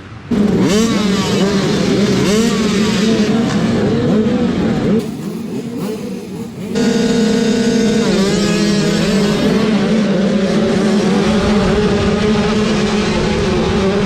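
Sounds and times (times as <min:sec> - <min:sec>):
motocross bikes revving: 0:00.1 - 0:14.0.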